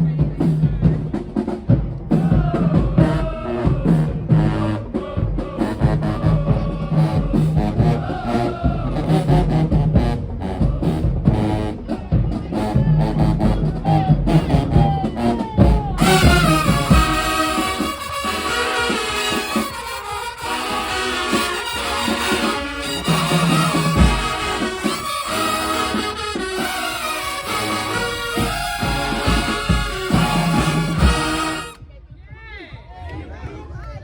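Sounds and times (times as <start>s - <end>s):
marching band playing: 0.0s - 31.9s
drums beating: 0.0s - 34.0s.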